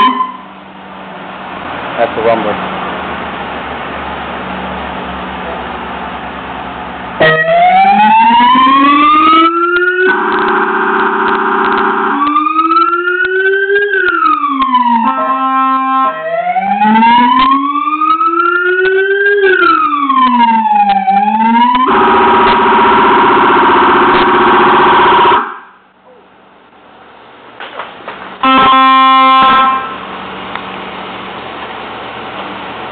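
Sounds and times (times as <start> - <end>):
police siren cycling tones: 0.0 - 0.6, 7.2 - 25.8, 28.4 - 30.0.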